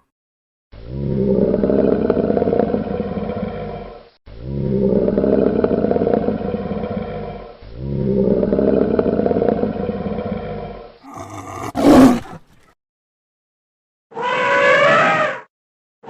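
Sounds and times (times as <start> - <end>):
lion roaring: 0.8 - 12.7.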